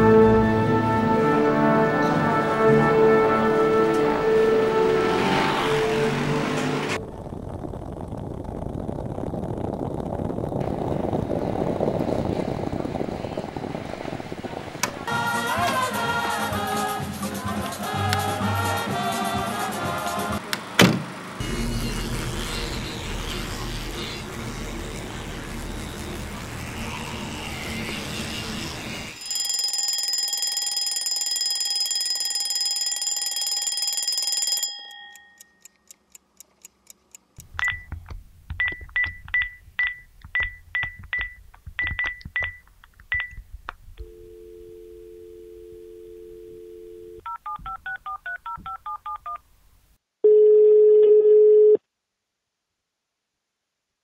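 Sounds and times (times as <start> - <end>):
landline dial tone: 29.2 - 34.8, 37.6 - 43.4, 44.0 - 49.4, 50.3 - 51.8
touch-tone key tones: 37.6 - 43.4
short beeps: 38.6 - 43.4
loud busy signal: 44.0 - 47.3.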